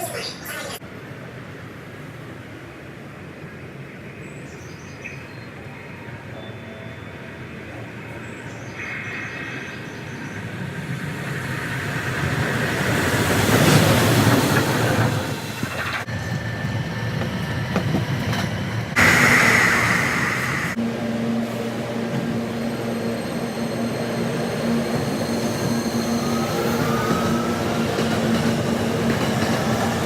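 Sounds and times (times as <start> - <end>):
train noise: 0.0 - 30.0.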